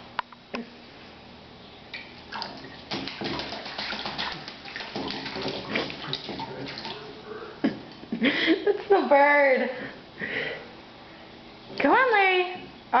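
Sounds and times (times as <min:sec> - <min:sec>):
bird splashing in water: 0:02.1 - 0:07.2.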